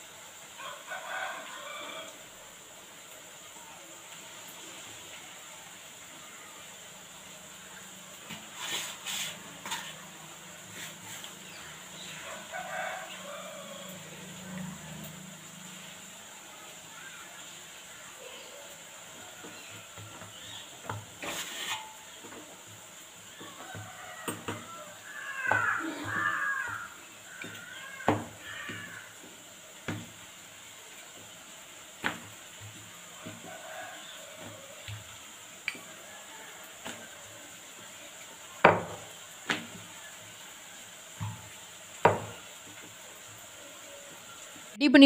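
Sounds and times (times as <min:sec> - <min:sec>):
bird cawing: 0:23.4 - 0:29.3.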